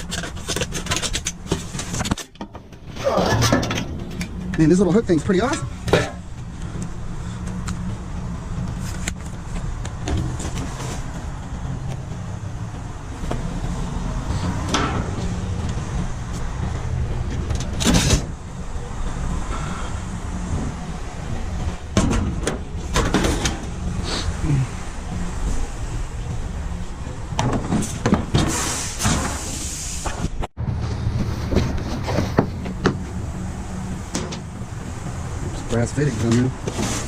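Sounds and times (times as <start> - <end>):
junk clattering in dumpster: 0.3 - 4.3, 21.9 - 23.8, 27.3 - 29.5.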